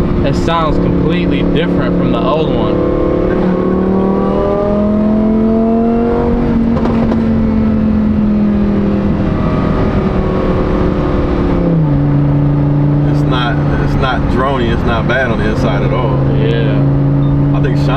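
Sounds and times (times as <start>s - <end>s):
sports car engine accelerating: 0.0s - 17.9s.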